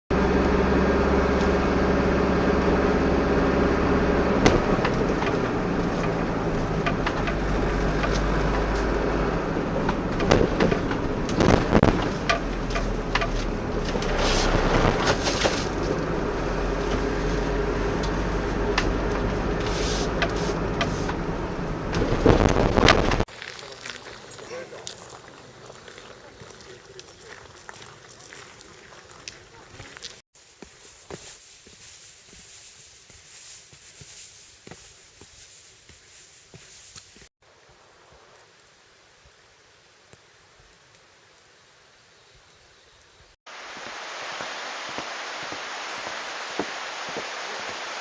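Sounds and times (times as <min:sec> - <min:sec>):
vehicle engine humming: 0:00.1 - 0:32.5
knocks and rattling: 0:04.3 - 0:16.2.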